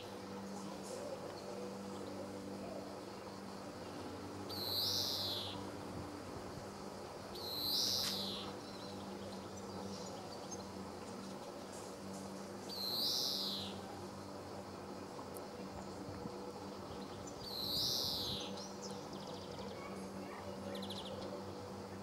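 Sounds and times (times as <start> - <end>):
steady low hum: 0.0 - 22.0
faint bird chirps: 4.5 - 5.6.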